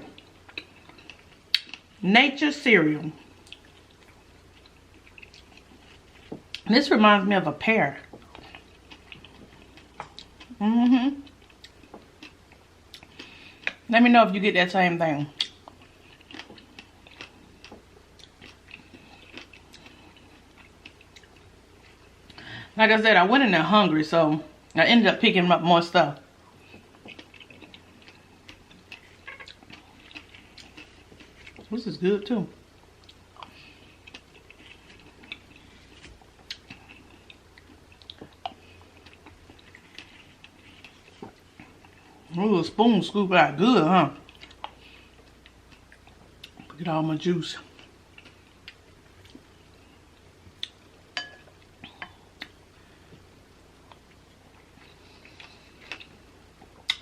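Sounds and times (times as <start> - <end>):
chewing fruit with crunches: 0.0 - 2.0, 2.8 - 7.1, 7.9 - 13.9, 15.2 - 22.5, 26.1 - 43.2, 43.8 - 46.9, 47.5 - 57.0.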